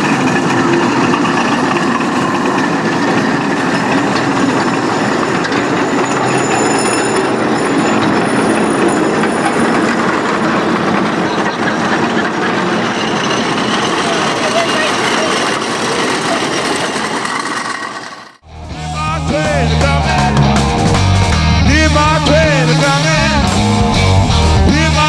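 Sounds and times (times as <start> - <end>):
miniature train rolling on track: 0.0 - 18.4.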